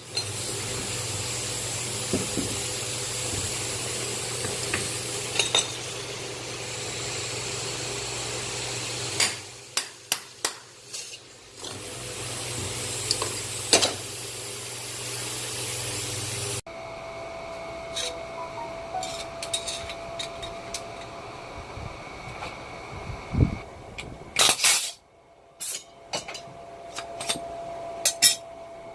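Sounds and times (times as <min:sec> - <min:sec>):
low machine hum: 0:16.7 - 0:24.4.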